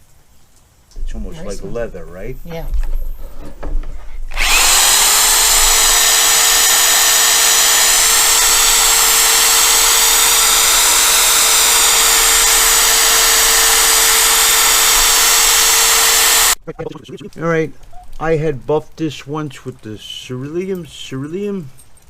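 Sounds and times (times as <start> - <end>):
electric drill whining: 4.3 - 16.6.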